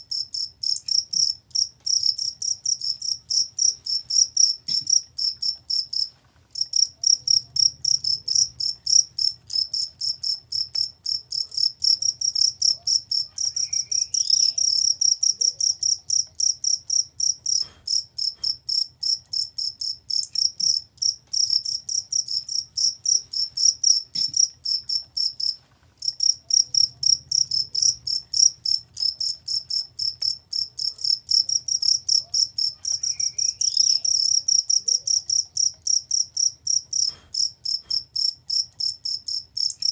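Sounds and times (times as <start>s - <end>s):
crickets chirping: 0.1s - 39.9s.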